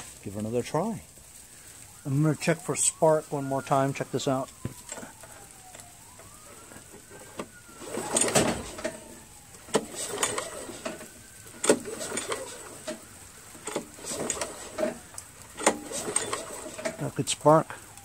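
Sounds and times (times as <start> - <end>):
mower engine turned over by pull cord: 6.5 - 17.1.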